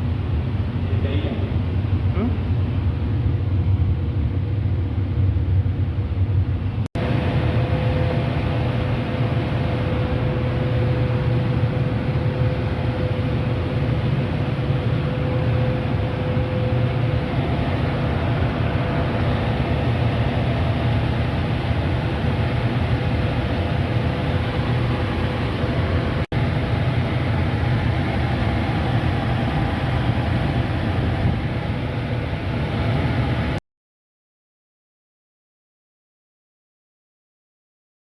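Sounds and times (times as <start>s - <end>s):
air conditioner whine: 0.0s - 33.6s
air conditioner humming: 7.0s - 33.6s.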